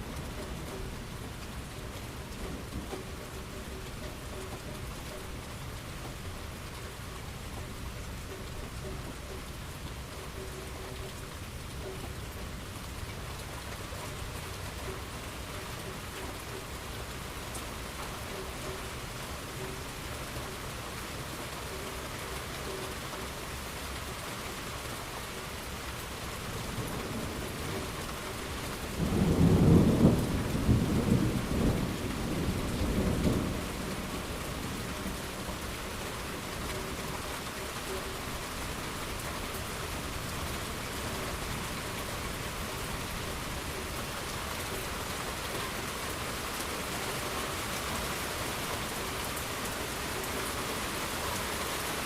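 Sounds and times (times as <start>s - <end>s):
steady rain: 0.0s - 52.0s
thunder rumbling: 28.8s - 35.6s.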